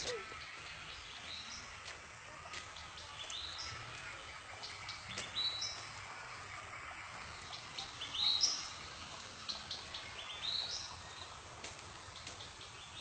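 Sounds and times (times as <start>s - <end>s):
faint bird chirps: 0.0s - 1.7s
faint steady hiss: 0.0s - 13.0s.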